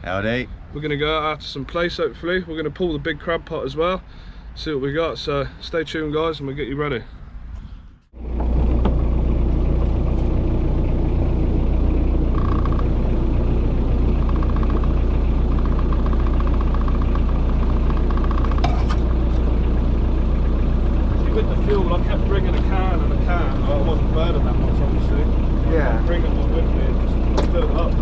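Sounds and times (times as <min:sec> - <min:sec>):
boat engine humming: 0:07.6 - 0:28.0.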